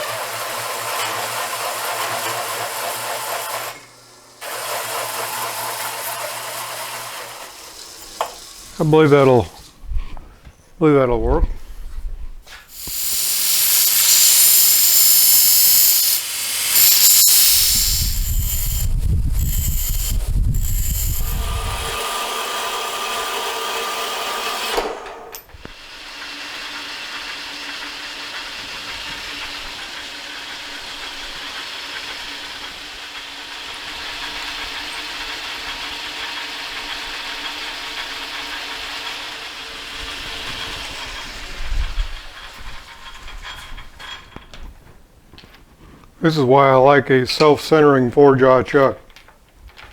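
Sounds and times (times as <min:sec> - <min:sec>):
power tool grinding metal: 0:12.7 - 0:25.0.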